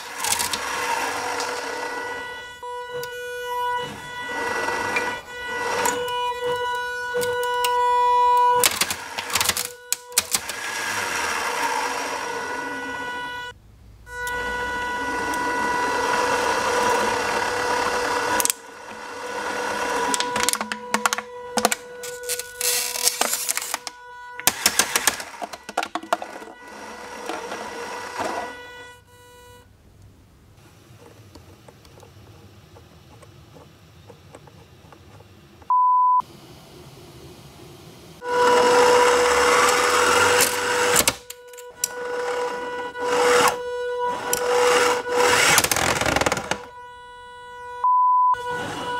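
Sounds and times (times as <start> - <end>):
shredder motor whine: 0.0 - 29.7, 38.2 - 48.9
material cracking and snapping: 20.1 - 26.2
short electronic beep: 35.7 - 36.2, 47.8 - 48.6.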